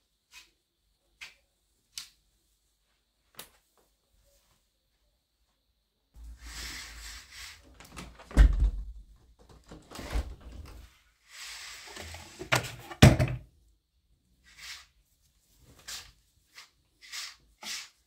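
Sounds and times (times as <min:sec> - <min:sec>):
knocks and thuds of cupboard: 0:08.3 - 0:09.0, 0:12.9 - 0:13.4.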